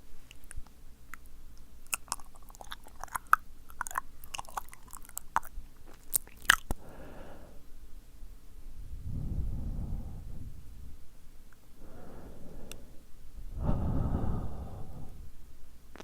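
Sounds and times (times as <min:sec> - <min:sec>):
tongue clicks and lip smacks: 0:00.2 - 0:06.8
soft breathy hiss: 0:06.7 - 0:16.0.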